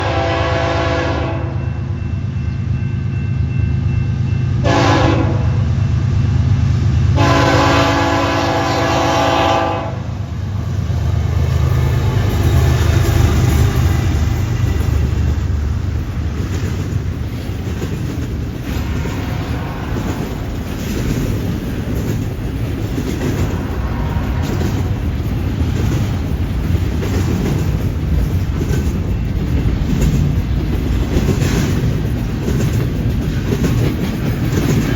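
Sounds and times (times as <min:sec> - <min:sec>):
train air horn: 0:00.0 - 0:01.8, 0:04.6 - 0:05.7, 0:07.2 - 0:10.2, 0:18.8 - 0:20.3, 0:23.4 - 0:24.9
train cars rattling: 0:00.0 - 0:34.9.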